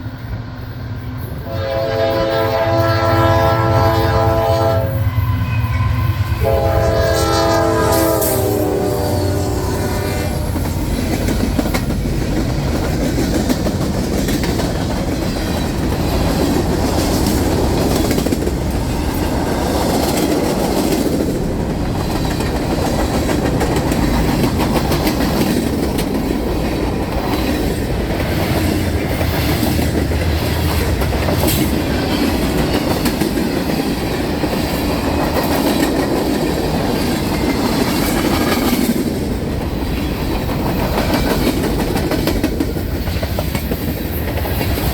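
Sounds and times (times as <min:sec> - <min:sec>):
freight train rumbling past: 0:00.0 - 0:44.9
wheels clacking over rail joints: 0:10.5 - 0:44.9.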